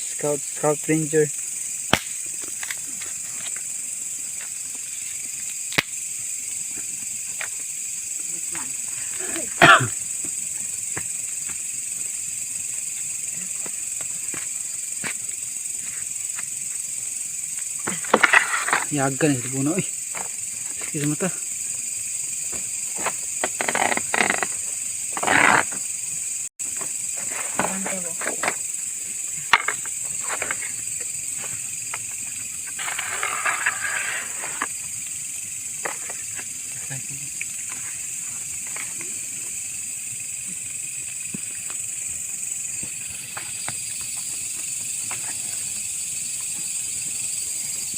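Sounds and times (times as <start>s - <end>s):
crickets chirping: 0.0s - 47.9s
bonfire crackling: 0.8s - 9.2s
wood fire crackling and popping: 1.9s - 3.6s, 5.4s - 6.0s.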